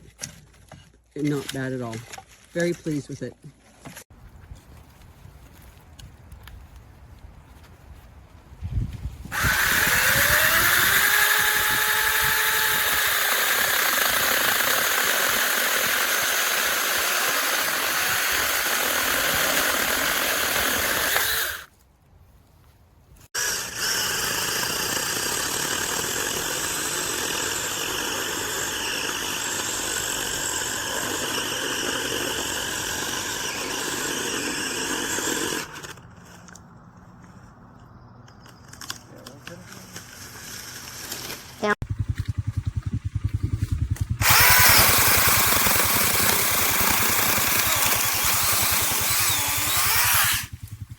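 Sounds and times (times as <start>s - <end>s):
mini chainsaw motor whining: 9.3s - 21.7s, 23.4s - 36.1s, 39.4s - 41.8s, 44.0s - 50.8s.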